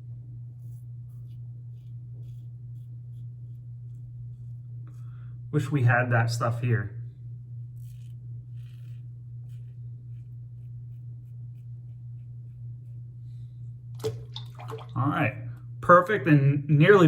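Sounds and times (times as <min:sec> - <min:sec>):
low electrical hum: 0:00.0 - 0:17.0
razor scraping stubble: 0:07.8 - 0:12.1.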